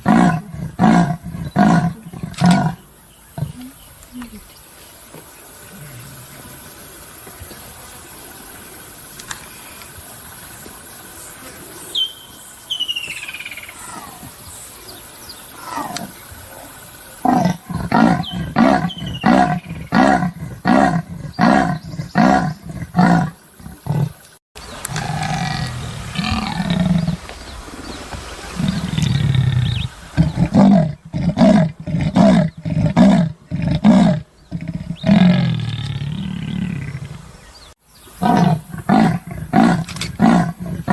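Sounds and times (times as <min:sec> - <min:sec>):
leopard sawing grunts: 0:38.2 - 0:40.9.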